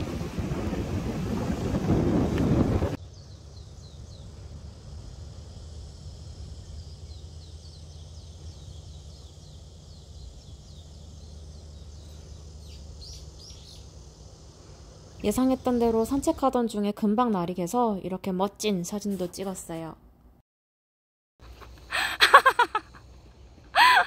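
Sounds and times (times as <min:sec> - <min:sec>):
low steady rumble: 0:00.0 - 0:18.2
small birds chirping: 0:03.0 - 0:04.5, 0:05.6 - 0:16.7.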